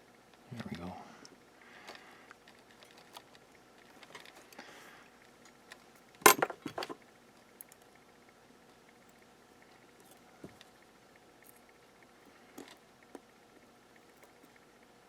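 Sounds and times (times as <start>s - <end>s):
metal objects clattering on workbench: 6.2s - 7.0s.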